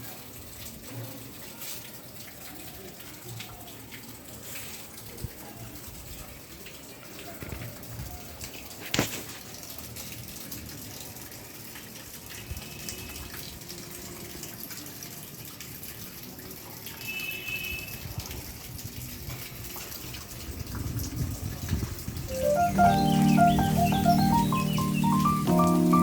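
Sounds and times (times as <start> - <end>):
running water rushing: 19.2 - 26.0.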